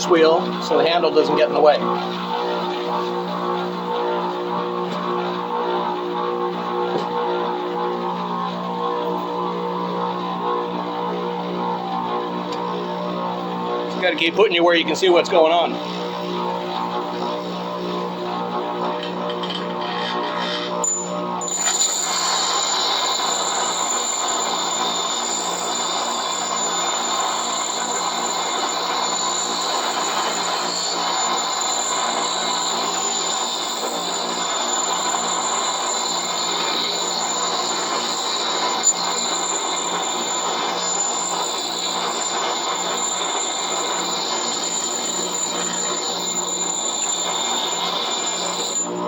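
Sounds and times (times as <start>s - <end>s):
axe blade grinding on wheel: 0.0s - 3.3s, 18.9s - 49.0s
bench grinder motor hum: 0.0s - 49.0s.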